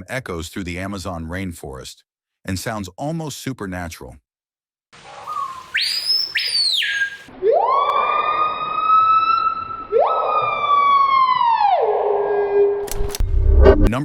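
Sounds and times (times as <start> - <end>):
bird whistling calls: 5.2 - 7.3.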